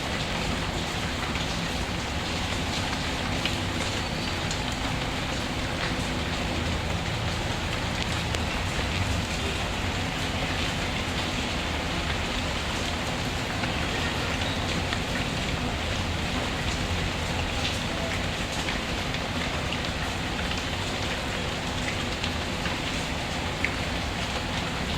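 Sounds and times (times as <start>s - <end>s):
steady rain falling: 0.0s - 24.9s.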